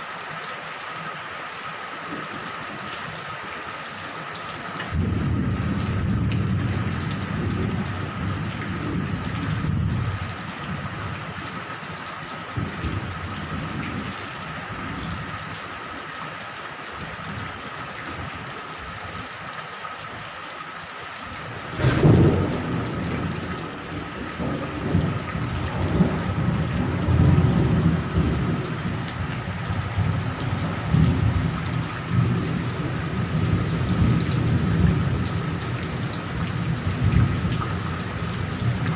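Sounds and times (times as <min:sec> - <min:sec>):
steady rain: 0:00.0 - 0:38.9
rolling thunder rumbles: 0:04.9 - 0:10.9, 0:21.4 - 0:38.9
sharp thunderclap: 0:21.5 - 0:35.3.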